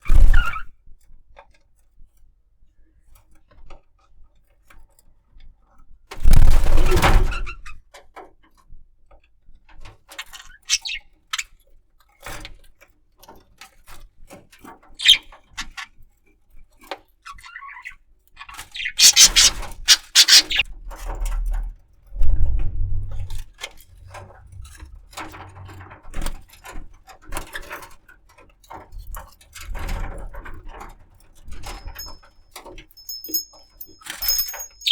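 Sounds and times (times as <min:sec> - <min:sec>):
budgerigar chirps: 0:10.7 - 0:11.0, 0:15.0 - 0:15.3, 0:18.8 - 0:20.6.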